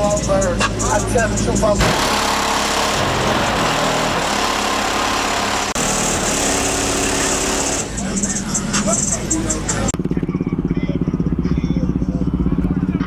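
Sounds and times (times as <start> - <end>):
car engine running loud: 0.0 - 13.0.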